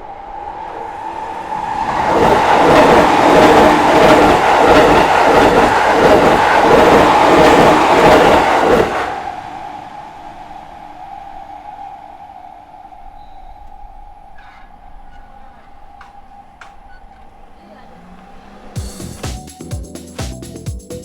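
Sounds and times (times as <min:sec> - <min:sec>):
train wheels clattering over rail joints: 0:14.4 - 0:18.8.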